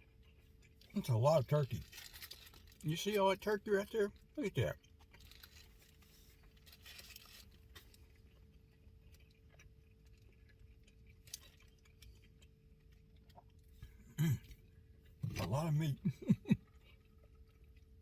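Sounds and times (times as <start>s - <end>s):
faint steady hum: 0.0s - 18.0s
soft clicks and rustles: 1.8s - 2.8s, 4.9s - 13.7s.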